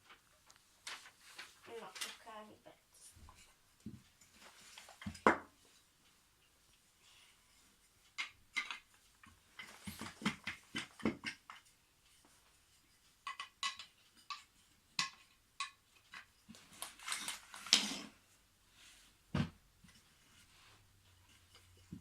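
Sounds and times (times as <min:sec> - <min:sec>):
wooden toy track pieces clacking: 0:08.2 - 0:11.7, 0:13.2 - 0:18.1.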